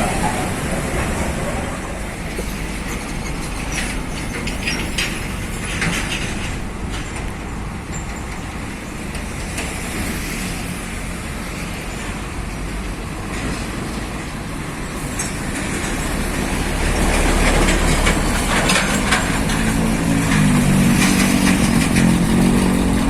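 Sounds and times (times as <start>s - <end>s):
rattling clatters: 0.0s - 10.0s, 15.2s - 23.0s
heavy truck passing: 0.0s - 23.0s.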